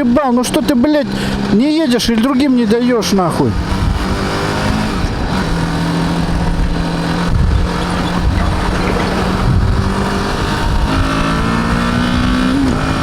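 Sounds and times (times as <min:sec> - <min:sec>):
road noise: 0:00.0 - 0:13.0
motorcycle engine running: 0:04.9 - 0:13.0
wind noise: 0:06.2 - 0:13.0.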